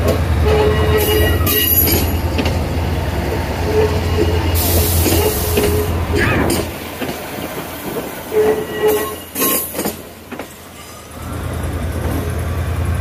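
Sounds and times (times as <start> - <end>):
train wheels clanking over track: 0.0 - 13.0
wheel squeal: 8.3 - 9.9.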